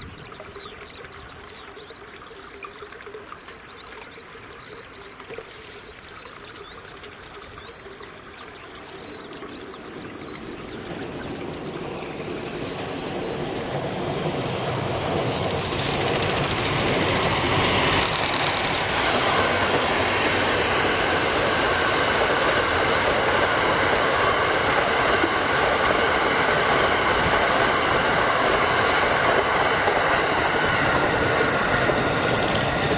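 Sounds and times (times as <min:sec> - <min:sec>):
train passing close by: 0:08.6 - 0:32.9
wheels clacking over rail joints: 0:09.1 - 0:32.9.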